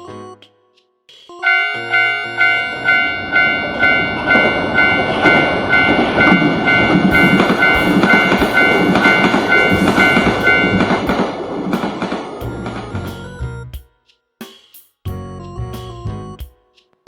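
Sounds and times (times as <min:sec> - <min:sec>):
railroad crossing bell ringing: 0:01.4 - 0:13.3
train rumbling past: 0:01.7 - 0:13.4
wheel clatter on rails: 0:03.6 - 0:12.8.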